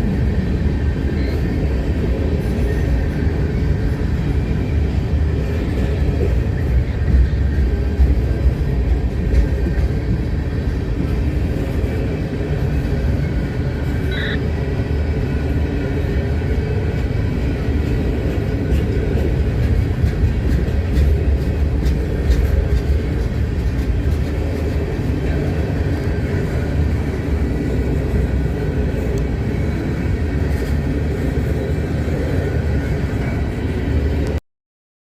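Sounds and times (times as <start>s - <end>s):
train wheels rumbling on rail: 0.0s - 34.4s
high-pitched wheel squeal: 14.0s - 14.4s.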